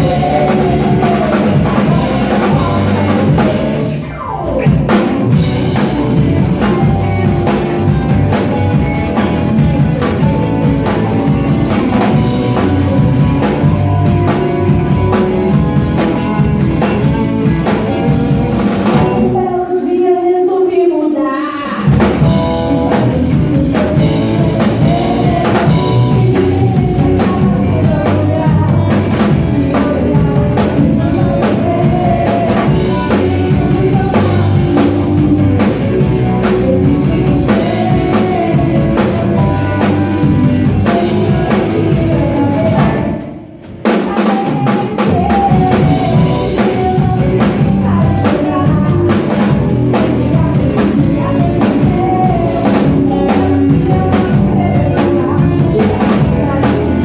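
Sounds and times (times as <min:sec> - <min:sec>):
live rock band playing: 0:00.0 - 0:57.0
person singing: 0:00.0 - 0:57.0.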